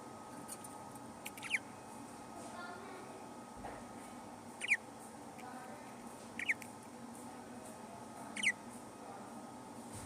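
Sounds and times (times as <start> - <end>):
budgerigar chirping: 1.3 - 1.7, 4.6 - 4.9, 6.4 - 6.7, 8.3 - 8.6.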